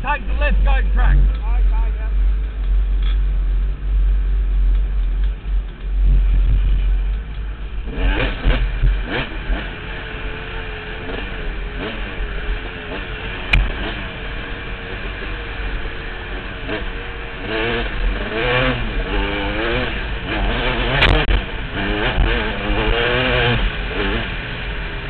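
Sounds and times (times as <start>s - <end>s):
dirt bike engine revving: 7.8s - 25.0s.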